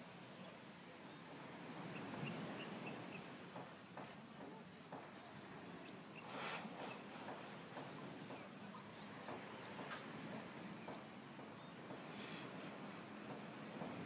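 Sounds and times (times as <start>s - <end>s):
steady hiss: 0.0s - 14.0s
small birds chirping: 4.4s - 14.0s.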